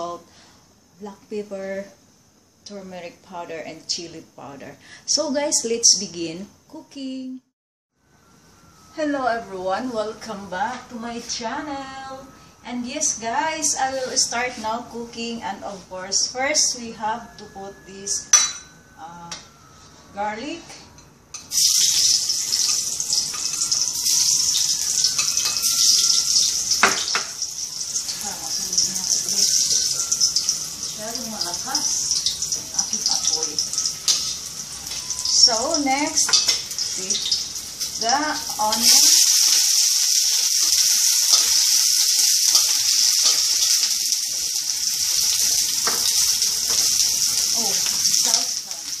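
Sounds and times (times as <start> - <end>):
garlic sizzling in hot oil: 21.3 - 49.0.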